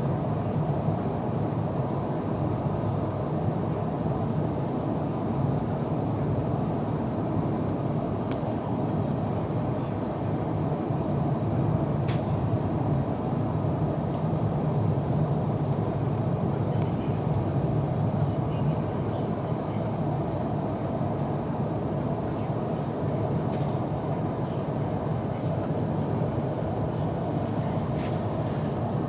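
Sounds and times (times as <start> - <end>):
airplane cabin rumble: 11.3 - 20.9, 22.0 - 29.0.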